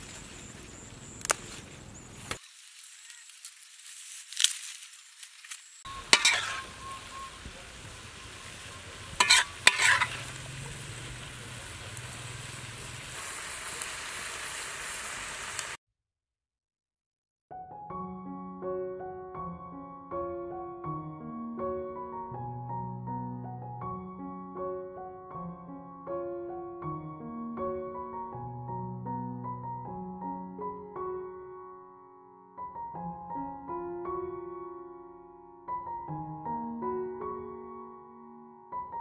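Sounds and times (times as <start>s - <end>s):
vegetables sizzling in a wok: 2.3s - 15.8s
spatula clinking against pan: 5.9s - 7.2s, 9.0s - 10.3s
soft piano music: 5.9s - 12.9s, 17.5s - 39.0s.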